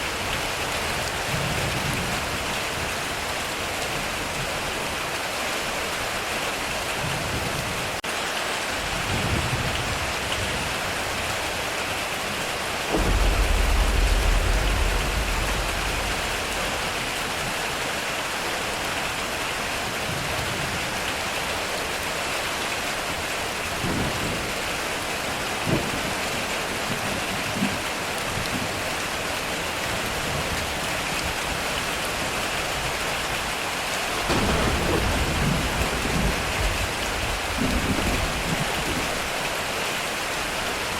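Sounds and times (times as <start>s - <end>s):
heavy rain on a metal roof: 0.0s - 40.9s
thunder rumbling: 12.8s - 19.0s, 34.2s - 39.3s.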